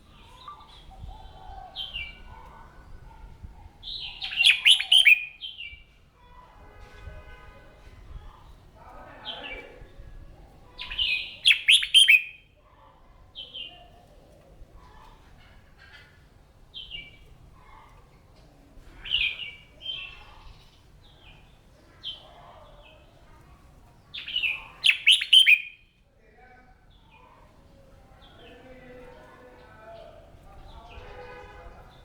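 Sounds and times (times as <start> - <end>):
bird singing warbled phrases: 0.0 - 3.2, 3.8 - 5.9, 9.1 - 10.0, 10.7 - 12.6, 13.4 - 14.0, 19.0 - 23.2, 24.0 - 25.9.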